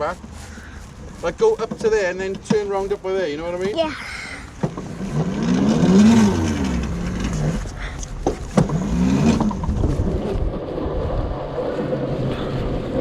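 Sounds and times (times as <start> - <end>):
low rumble: 4.9 - 13.0.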